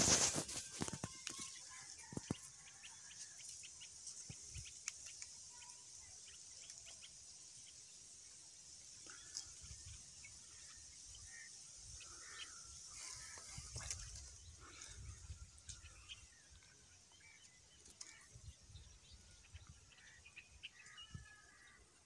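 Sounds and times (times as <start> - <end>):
faint bird calls: 9.0 - 22.0.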